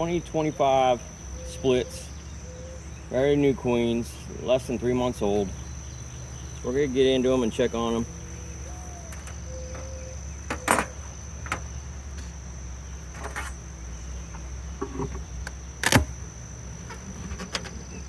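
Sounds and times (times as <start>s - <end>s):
high insect trill: 0.0s - 18.0s
low steady hum: 0.0s - 18.0s
sharp clicks and knocks: 9.1s - 12.3s, 14.3s - 16.1s.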